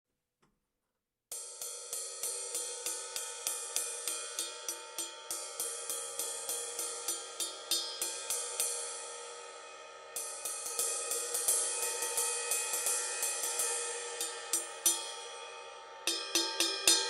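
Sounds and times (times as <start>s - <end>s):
ride cymbal struck with a stick: 1.3s - 17.0s.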